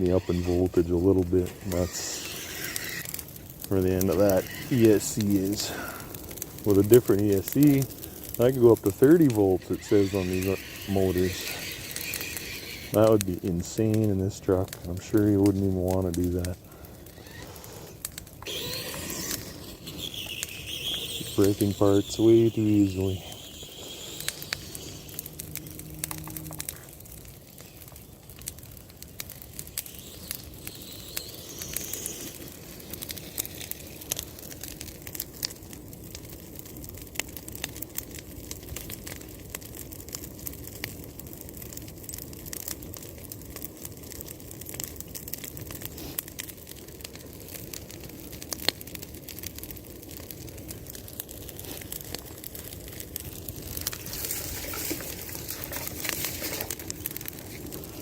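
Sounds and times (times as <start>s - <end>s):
bonfire crackling and popping: 0.0s - 58.0s.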